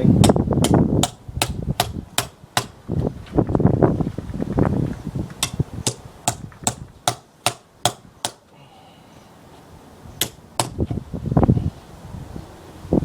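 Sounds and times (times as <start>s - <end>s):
hammer striking chisel into wood: 0.2s - 2.8s, 5.4s - 8.4s, 10.2s - 10.9s.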